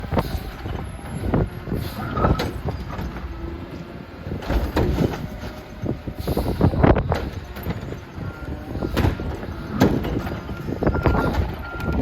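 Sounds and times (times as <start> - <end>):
garbage truck running: 0.0 - 12.0
wind buffeting microphone: 0.0 - 12.0.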